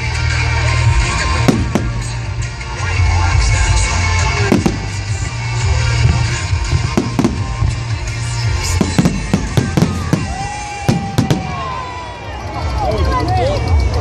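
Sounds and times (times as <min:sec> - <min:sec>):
music playing: 0:00.0 - 0:14.0
fireworks bangs and crackles: 0:01.2 - 0:02.8, 0:04.3 - 0:12.3.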